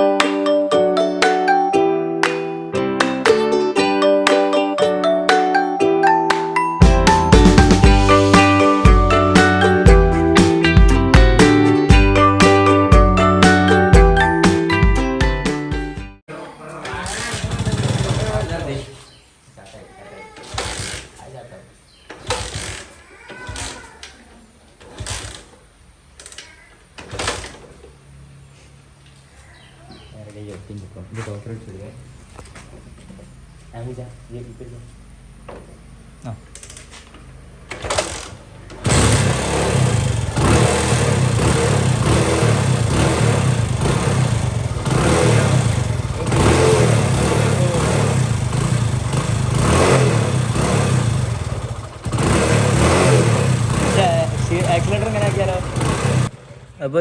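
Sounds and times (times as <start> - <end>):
motorcycle engine revving: 16.9 - 19.1, 22.2 - 23.0, 37.3 - 57.0.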